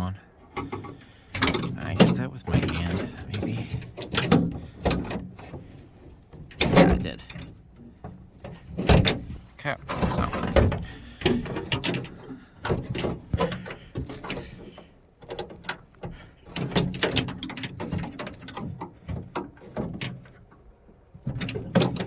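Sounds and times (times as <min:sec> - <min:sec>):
clicks and rattles of tool on door linkage: 0:00.5 - 0:05.7, 0:06.3 - 0:09.3, 0:09.9 - 0:20.6, 0:21.2 - 0:22.0.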